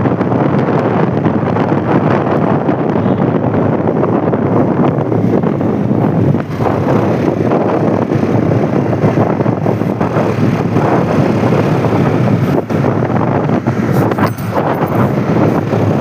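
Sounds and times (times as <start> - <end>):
wind buffeting microphone: 0.0 - 16.0
motorcycle engine running: 5.8 - 16.0.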